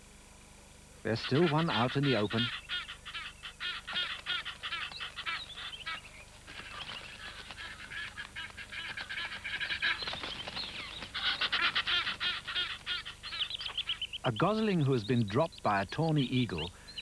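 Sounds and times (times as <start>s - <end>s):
geese alarm calls: 1.1s - 17.0s.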